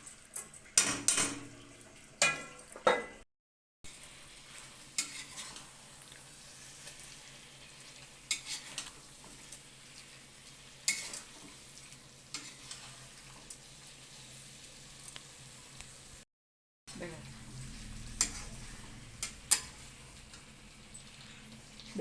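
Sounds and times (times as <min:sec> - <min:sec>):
spoon clinking and scraping a pan: 0:00.0 - 0:01.6, 0:02.2 - 0:03.2, 0:04.5 - 0:13.9, 0:17.5 - 0:22.0
faint steady sizzle in a pan: 0:03.9 - 0:16.2, 0:16.9 - 0:22.0.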